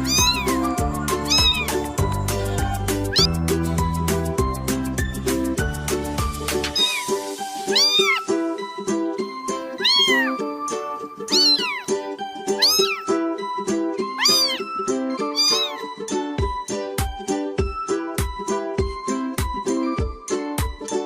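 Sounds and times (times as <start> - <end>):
cat meowing: 0.0 - 3.3, 6.8 - 8.4, 9.7 - 10.5, 11.3 - 13.2, 14.1 - 15.9
light background music: 0.0 - 21.0.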